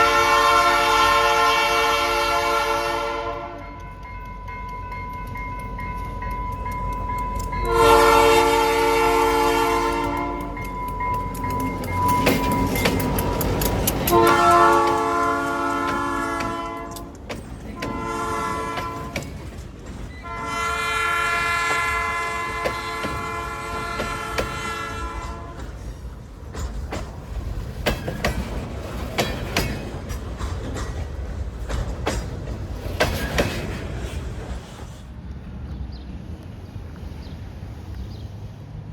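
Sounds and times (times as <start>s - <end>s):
locomotive air horn blasts: 0.0s - 3.9s, 7.6s - 10.7s, 14.0s - 17.2s, 17.8s - 19.4s, 20.2s - 25.7s
train wheels clicking over rail joints: 3.4s - 37.1s.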